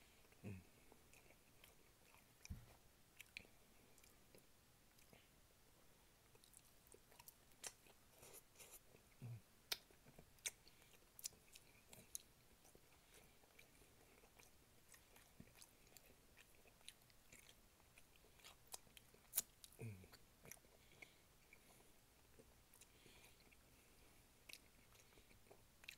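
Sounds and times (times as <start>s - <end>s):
chewing and lip-smacking: 6.3s - 9.1s, 9.7s - 25.9s.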